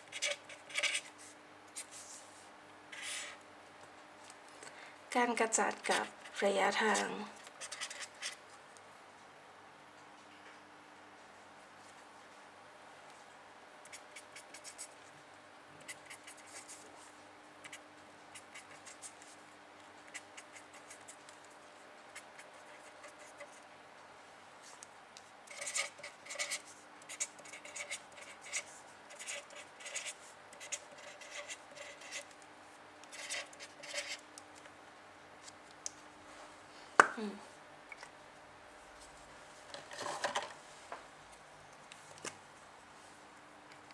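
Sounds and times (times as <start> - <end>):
pen scratching on paper: 0.0 - 1.1, 3.0 - 3.4, 5.8 - 8.4, 13.9 - 14.9, 15.8 - 16.9, 17.6 - 19.2, 20.1 - 21.2, 22.2 - 23.6, 25.5 - 32.3, 33.1 - 34.2.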